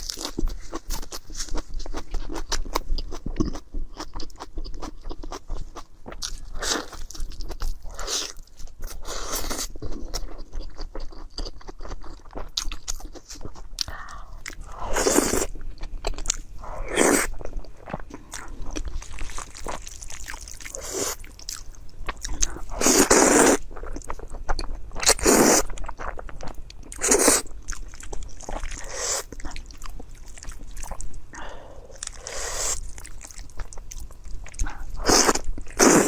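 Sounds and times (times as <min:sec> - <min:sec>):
wet chewing and biting: 0:00.0 - 0:31.1.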